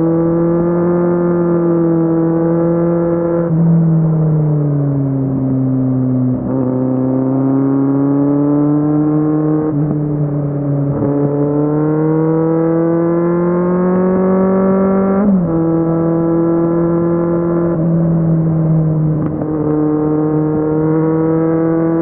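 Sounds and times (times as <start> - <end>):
motorcycle engine revving: 6.4 - 17.9, 19.1 - 22.0.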